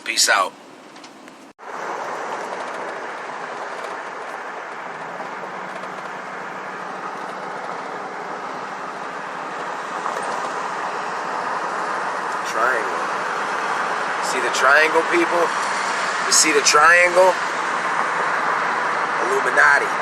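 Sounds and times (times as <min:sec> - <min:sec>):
car road and engine noise: 0:00.0 - 0:20.0.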